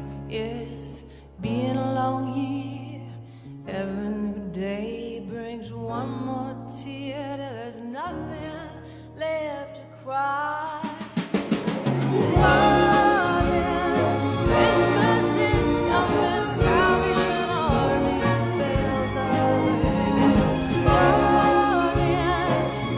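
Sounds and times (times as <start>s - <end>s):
percussion roll: 10.9s - 22.9s
orchestra and band playing: 11.4s - 22.9s
person singing: 12.1s - 22.9s.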